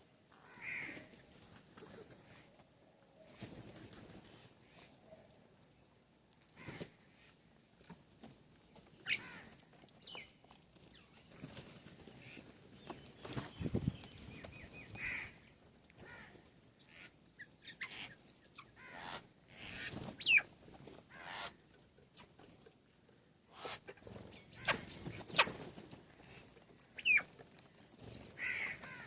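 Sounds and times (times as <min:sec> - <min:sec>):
birds chirping and calling: 0:09.0 - 0:20.5, 0:21.1 - 0:21.6, 0:23.5 - 0:26.4, 0:27.0 - 0:27.4, 0:28.0 - 0:29.0.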